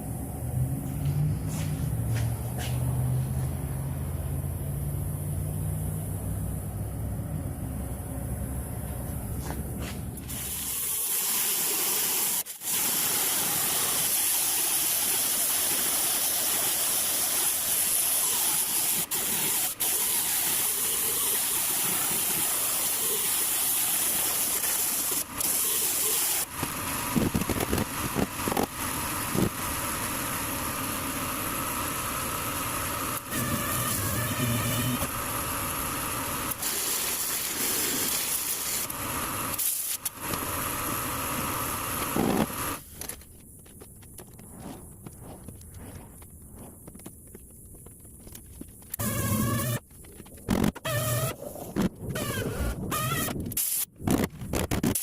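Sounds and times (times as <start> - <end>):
compressed-air tool hissing: 10.2 - 30.4, 31.5 - 42.8, 48.9 - 49.8, 52.2 - 53.9.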